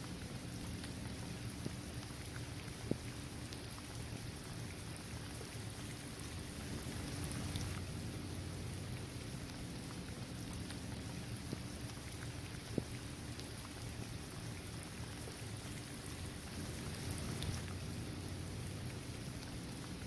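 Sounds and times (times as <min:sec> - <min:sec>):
steady rain falling: 0:00.0 - 0:20.0
raindrops tapping: 0:16.4 - 0:20.0.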